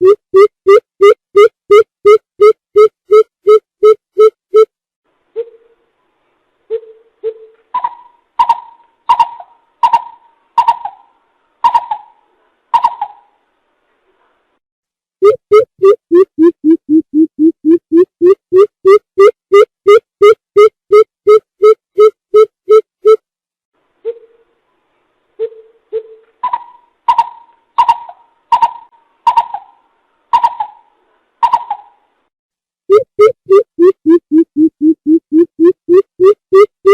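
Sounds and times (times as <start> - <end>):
bird hooting calls: 6.8 - 12.2, 25.4 - 32.0.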